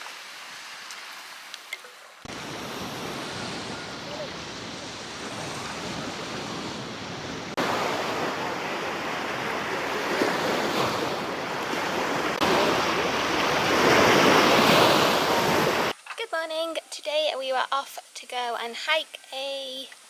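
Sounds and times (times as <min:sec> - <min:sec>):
waves washing onto beach: 0:00.0 - 0:15.9
wind on microphone: 0:02.3 - 0:15.9.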